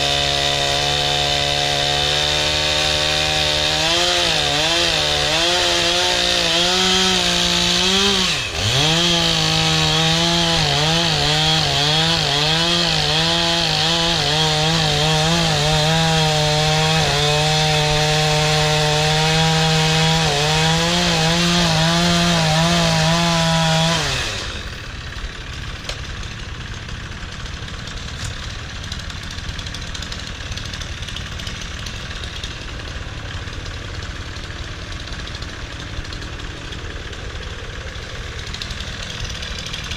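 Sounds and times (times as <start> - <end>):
chainsaw cutting a log: 0.0 - 39.9
engine idling: 24.4 - 39.9.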